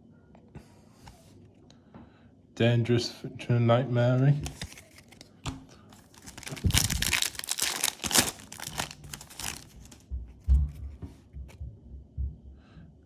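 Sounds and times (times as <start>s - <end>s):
wrapper crinkling and tearing: 4.4s - 5.3s, 6.0s - 10.0s
dull low bumps: 9.4s - 12.8s.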